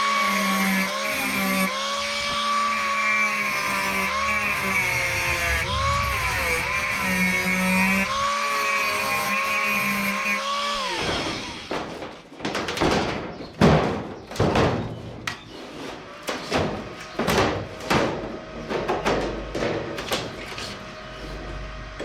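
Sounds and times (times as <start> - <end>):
power tool whining: 0.0 - 12.0
power tool bursts and knocks: 10.4 - 15.7.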